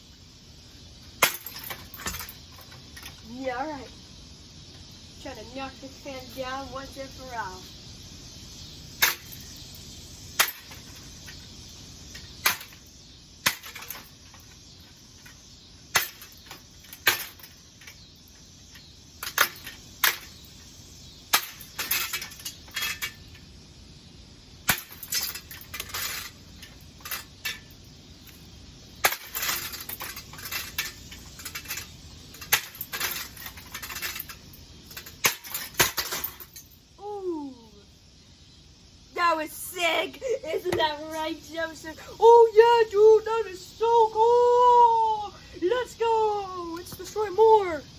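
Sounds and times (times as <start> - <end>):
sharp metallic impacts: 1.0 - 3.2, 8.9 - 23.5, 24.6 - 36.8
parts clattering and rattling: 1.0 - 3.4, 9.0 - 9.8, 10.4 - 23.5, 24.6 - 36.9.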